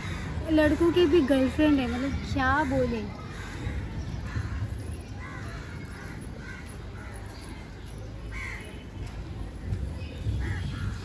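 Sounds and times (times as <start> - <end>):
bird caws: 0.0 - 0.8.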